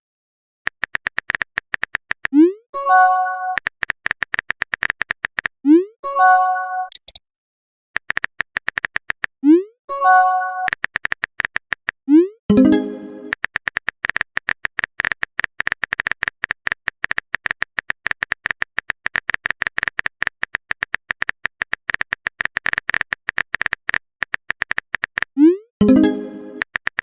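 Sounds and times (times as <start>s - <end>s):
phone keyboard typing clicks: 0.7s - 2.4s, 3.5s - 5.6s, 6.9s - 7.2s, 8.0s - 9.4s, 10.6s - 12.0s, 12.7s - 27.0s
rising blip and chime: 12.5s - 13.3s.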